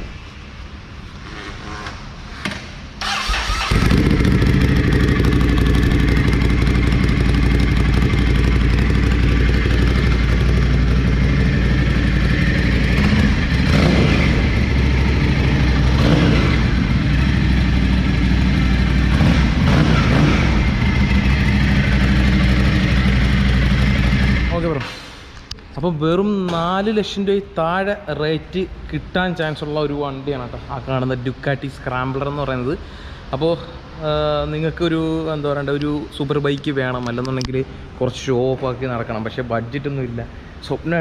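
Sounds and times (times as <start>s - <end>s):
motorcycle engine cranking: 3.0s - 11.4s
motorcycle engine idling: 3.6s - 24.5s.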